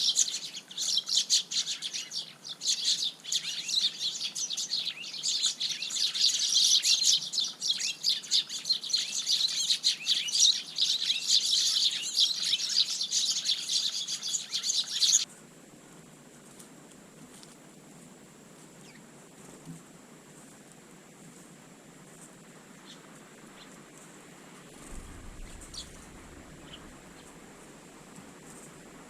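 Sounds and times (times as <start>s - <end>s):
flock of sparrows chirping: 0.0s - 15.3s, 18.8s - 19.6s, 24.7s - 28.7s.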